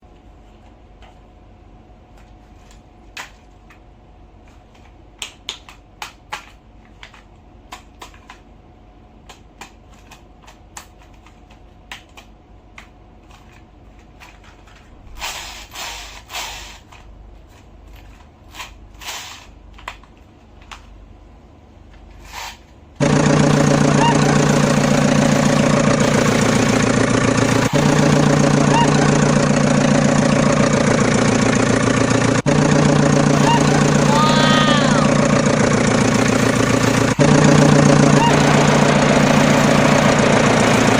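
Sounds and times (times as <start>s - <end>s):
small motor running: 23.0s - 40.9s.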